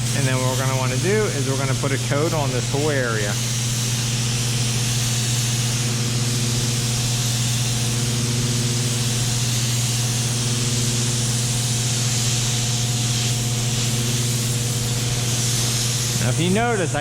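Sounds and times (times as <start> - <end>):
low machine hum: 0.0 - 17.0
spray gun hissing: 0.0 - 17.0.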